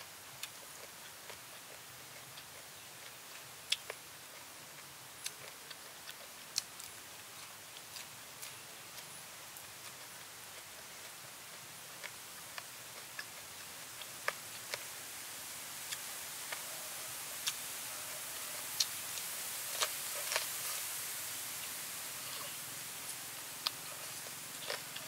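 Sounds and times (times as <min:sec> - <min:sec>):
steady high hiss: 0:00.0 - 0:25.0
person biting and chewing: 0:19.7 - 0:20.8, 0:23.6 - 0:25.0.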